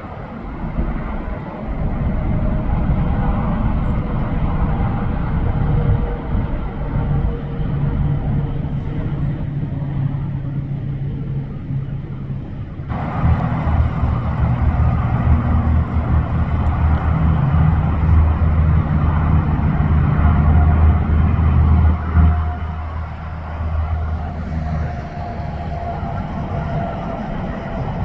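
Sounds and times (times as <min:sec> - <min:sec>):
highway traffic rumble: 0:00.0 - 0:28.0.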